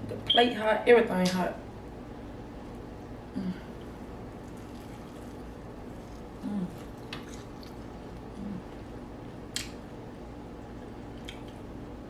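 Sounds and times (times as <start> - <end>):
chewing and mouth sounds: 3.8 - 8.9, 10.6 - 11.7.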